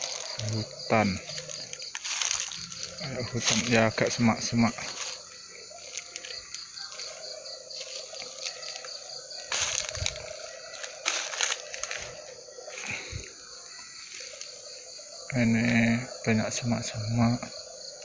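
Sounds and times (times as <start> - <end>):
rustling in brush: 0.0 - 4.0, 4.7 - 12.9
crickets chirring: 0.0 - 18.0.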